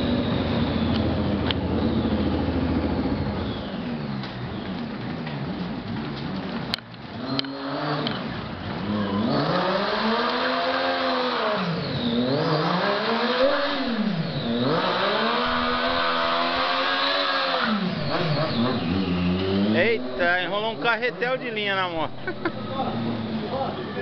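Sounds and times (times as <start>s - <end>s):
motorcycle engine revving: 0.0s - 24.0s
tyre screeching: 13.4s - 24.0s.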